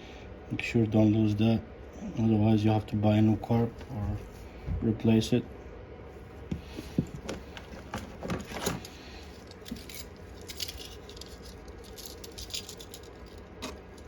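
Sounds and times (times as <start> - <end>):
small metal parts clicking: 8.6 - 14.0.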